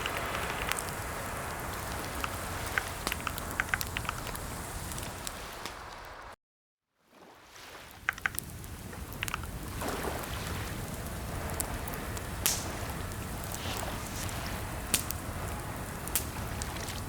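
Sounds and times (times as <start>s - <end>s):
steady background hiss: 0.0s - 6.4s, 8.1s - 17.0s
keyboard key clicks: 2.1s - 4.2s, 8.1s - 8.4s, 9.2s - 9.5s.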